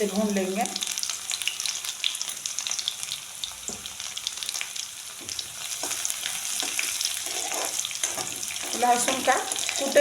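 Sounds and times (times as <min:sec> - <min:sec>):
spices sizzling in hot oil: 0:00.0 - 0:10.0
pan being stirred: 0:05.2 - 0:10.0.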